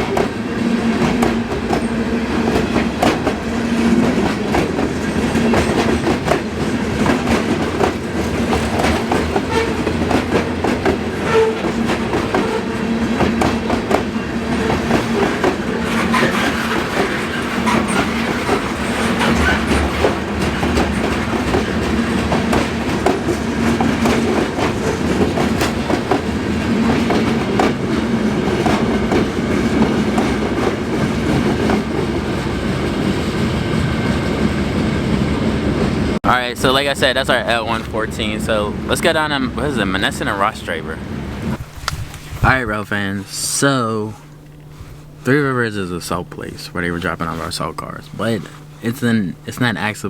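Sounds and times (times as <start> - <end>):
wheels clacking over rail joints: 0.0 - 34.5
freight train cars rumbling past: 0.0 - 50.0.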